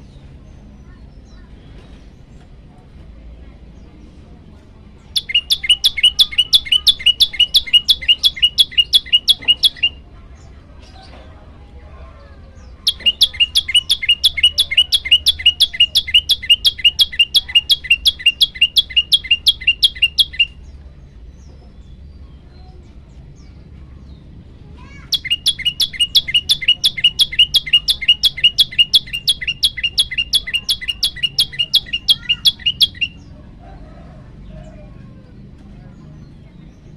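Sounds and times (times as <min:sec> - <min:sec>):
bird repeating high falling notes: 0:05.2 - 0:10.0, 0:12.9 - 0:20.6, 0:25.1 - 0:33.3.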